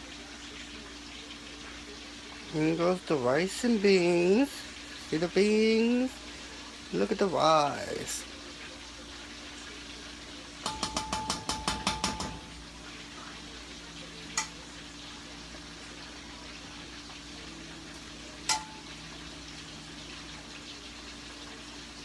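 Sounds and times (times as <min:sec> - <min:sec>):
metal utensil clinking against pot: 0:10.6 - 0:12.6, 0:18.5 - 0:18.9.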